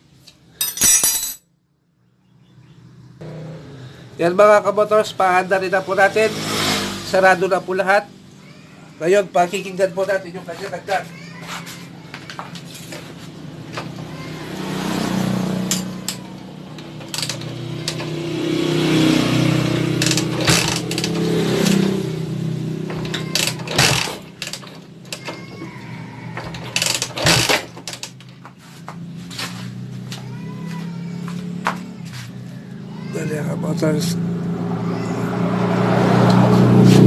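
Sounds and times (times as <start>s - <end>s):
motorcycle engine revving: 3.2s - 8.6s, 13.0s - 37.0s.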